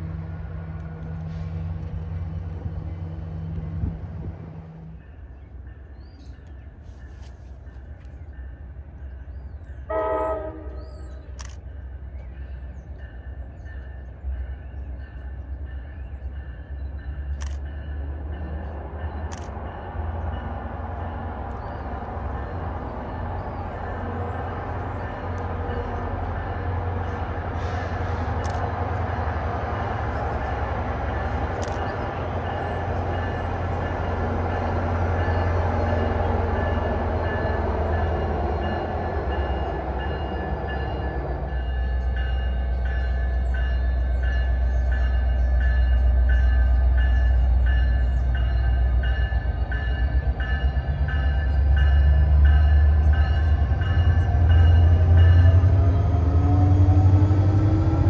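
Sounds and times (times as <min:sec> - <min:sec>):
approaching train rumble: 0:00.0 - 0:58.0
train horn blast: 0:09.9 - 0:11.2.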